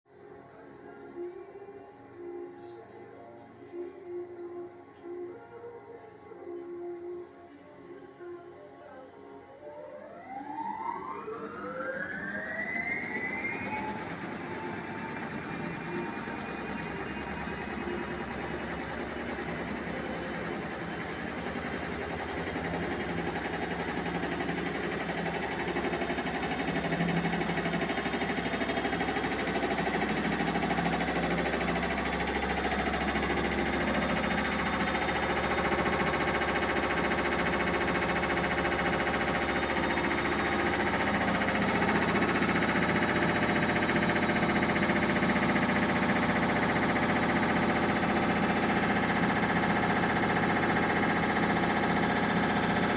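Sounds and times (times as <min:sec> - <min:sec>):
washing machine drum spinning: 0:12.4 - 0:52.9
rhythmic knocking of unbalanced load: 0:12.8 - 0:52.9.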